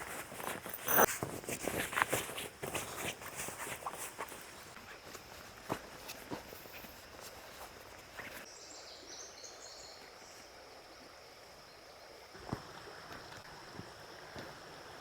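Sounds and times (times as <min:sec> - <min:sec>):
flowing water hiss: 0:06.4 - 0:15.0.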